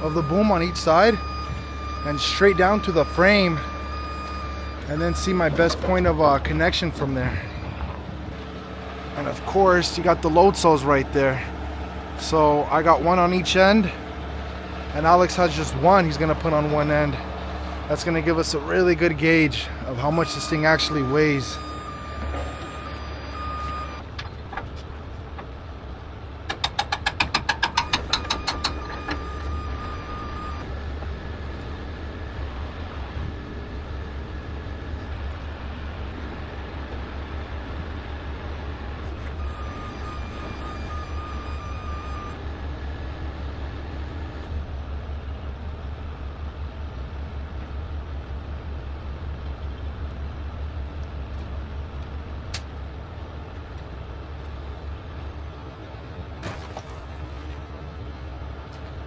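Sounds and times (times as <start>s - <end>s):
reversing beeper: 0.0s - 7.7s, 19.6s - 24.0s, 27.8s - 30.7s, 39.4s - 42.4s
diesel truck engine idling: 0.0s - 56.4s.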